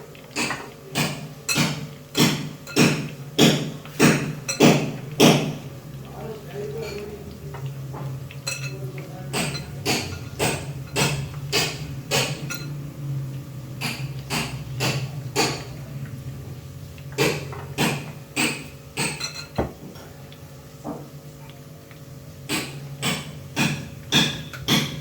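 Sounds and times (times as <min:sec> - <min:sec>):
sharp knocks: 0:00.4 - 0:05.6, 0:09.3 - 0:12.4, 0:13.8 - 0:15.7, 0:22.5 - 0:25.0
steady low hum: 0:04.3 - 0:25.0.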